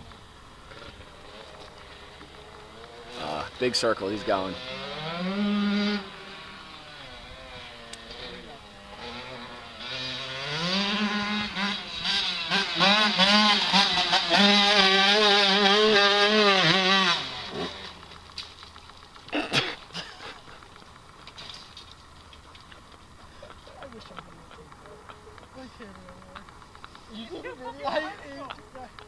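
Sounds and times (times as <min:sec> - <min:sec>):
dirt bike engine revving: 0:00.0 - 0:21.7.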